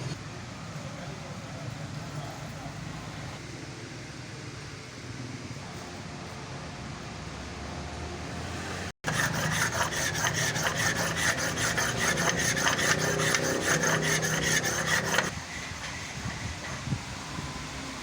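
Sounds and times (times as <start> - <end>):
fan-like hum: 0.0 - 18.0
hand tool scraping metal: 9.0 - 15.7.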